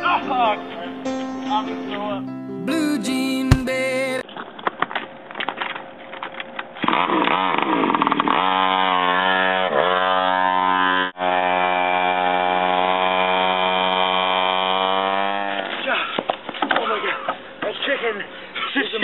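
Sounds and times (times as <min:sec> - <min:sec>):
small engine revving: 0:06.9 - 0:16.3.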